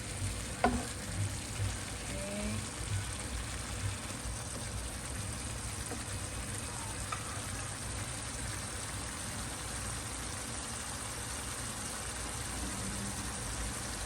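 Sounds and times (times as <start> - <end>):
pot sizzling and simmering: 0.0 - 14.0.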